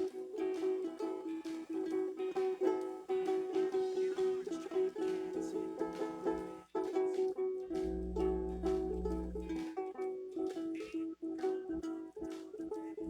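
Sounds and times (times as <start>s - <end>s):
acoustic stringed instrument strumming: 0.0s - 13.0s
steady low hum: 7.8s - 9.6s.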